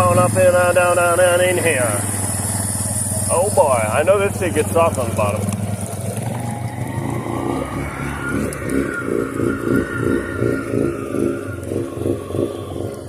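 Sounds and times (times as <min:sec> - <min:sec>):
quad bike engine under load: 0:00.0 - 0:13.0.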